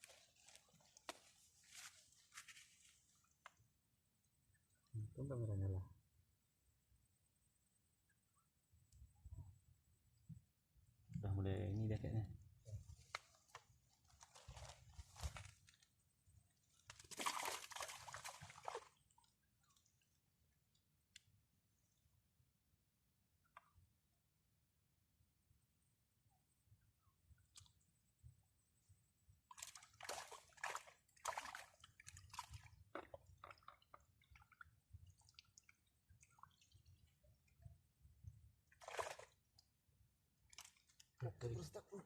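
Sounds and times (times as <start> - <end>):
rustling and crunching: 12.9 - 15.9
water sloshing and splashing: 16.6 - 20.1, 29.4 - 39.7, 40.4 - 41.2
water dripping: 29.5 - 39.7.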